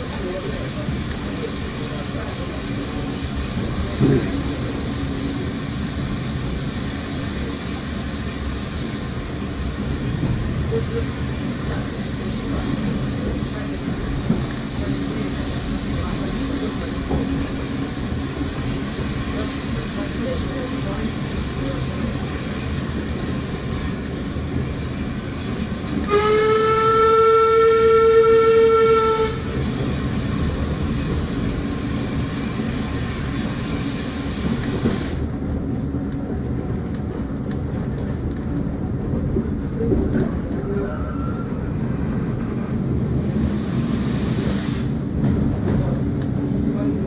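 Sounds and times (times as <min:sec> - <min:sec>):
train wheels rumbling on rails: 0:00.0 - 0:47.0
locomotive horn blast: 0:26.1 - 0:29.6.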